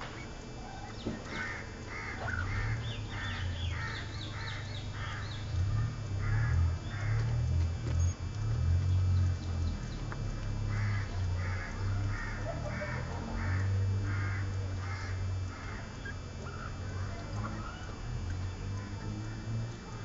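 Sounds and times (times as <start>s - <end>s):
steady low rumble: 0.0s - 20.0s
bird giving harsh calls: 1.3s - 7.2s.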